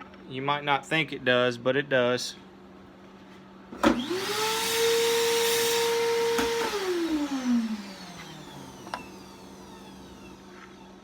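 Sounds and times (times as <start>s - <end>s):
power tool motor whining: 3.8s - 11.0s.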